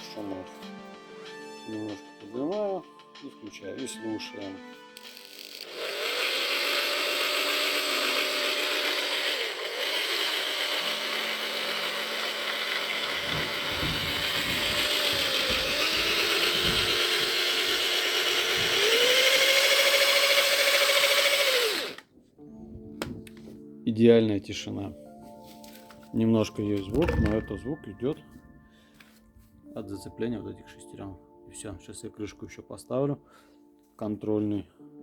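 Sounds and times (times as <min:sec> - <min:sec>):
electric drill whine: 0:05.0 - 0:22.0.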